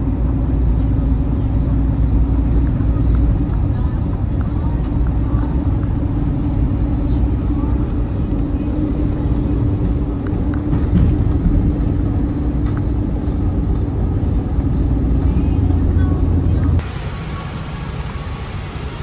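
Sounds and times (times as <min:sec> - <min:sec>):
truck engine rumbling: 0:00.0 - 0:19.0.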